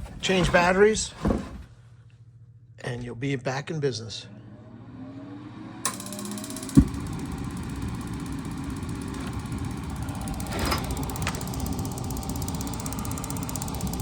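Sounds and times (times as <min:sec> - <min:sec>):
propane heater running: 0:04.4 - 0:14.0
fast fine ticking: 0:05.9 - 0:14.0.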